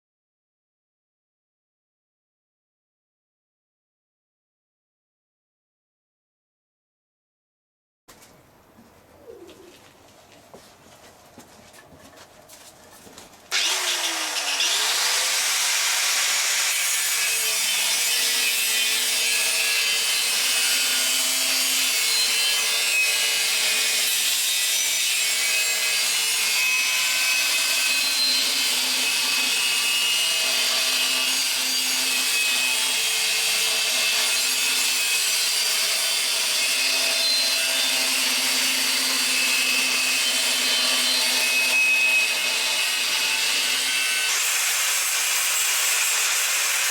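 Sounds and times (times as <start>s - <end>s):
power tool grinding steel: 13.5s - 46.9s.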